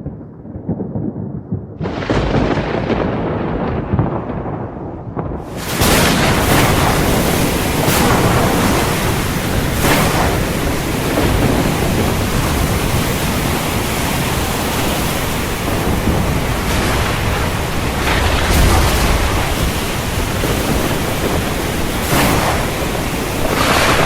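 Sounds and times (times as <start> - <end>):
heavy rain pouring: 5.2 - 24.0.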